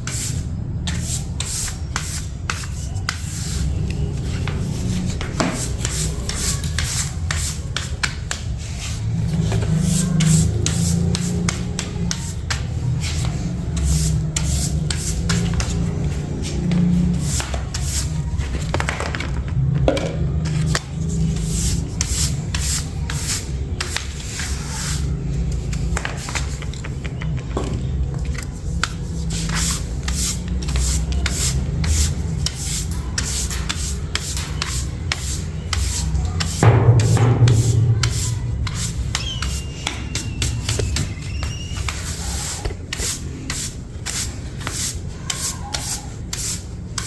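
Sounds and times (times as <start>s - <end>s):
hand rubbing and scraping: 0.0s - 18.8s, 28.5s - 47.0s
low hum: 36.6s - 39.8s.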